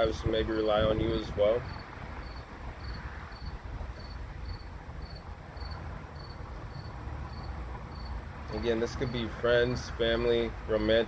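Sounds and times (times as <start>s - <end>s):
cricket chirping: 1.6s - 8.2s.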